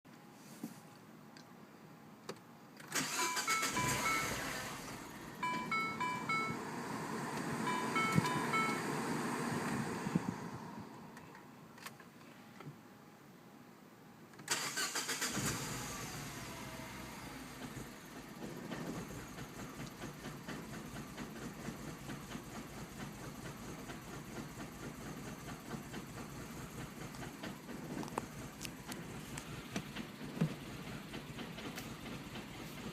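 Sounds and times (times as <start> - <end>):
car engine cranking: 2.8 - 11.4, 14.4 - 32.9
engine revving then rough idle: 3.7 - 5.4, 14.7 - 32.9.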